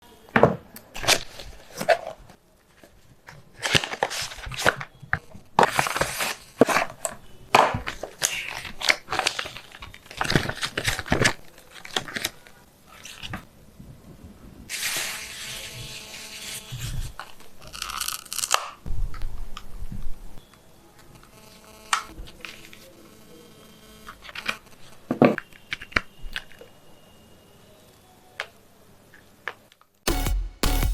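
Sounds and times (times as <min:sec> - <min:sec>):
packaging crinkling and tearing: 0:01.0 - 0:13.5, 0:14.7 - 0:18.8, 0:24.1 - 0:26.7.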